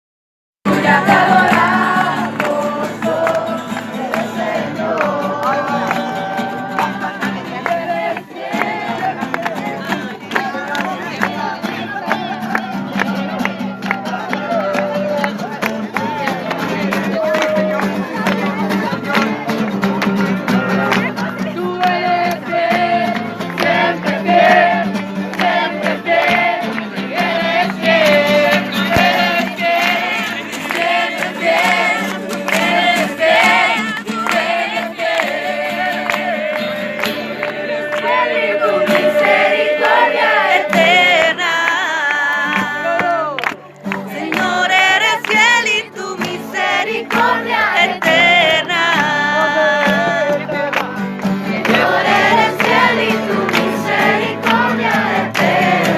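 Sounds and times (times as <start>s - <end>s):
group of voices singing: 0.7s - 55.9s.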